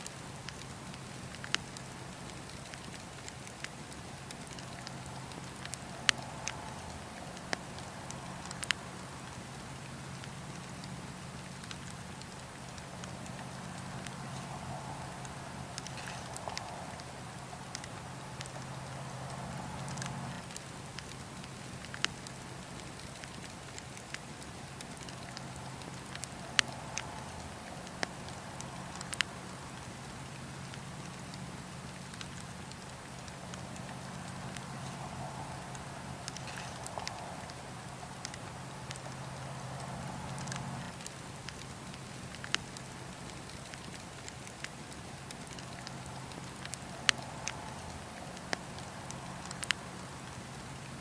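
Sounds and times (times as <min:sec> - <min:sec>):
wood fire crackling: 0:00.0 - 0:51.0
sharp pops of fire: 0:00.4 - 0:29.8
steady low rumble: 0:00.8 - 0:43.3.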